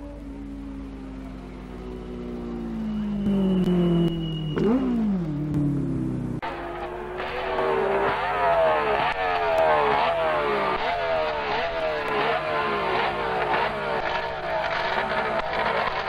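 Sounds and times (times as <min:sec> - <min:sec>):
engine revving hard: 0:06.4 - 0:16.0.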